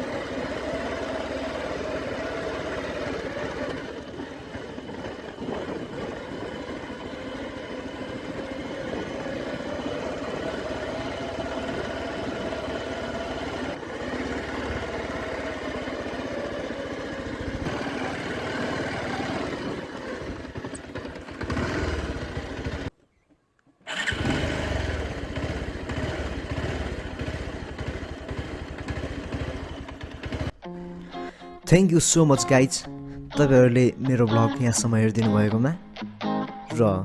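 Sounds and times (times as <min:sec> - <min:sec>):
motorcycle engine running: 0:00.0 - 0:22.9, 0:23.9 - 0:30.6.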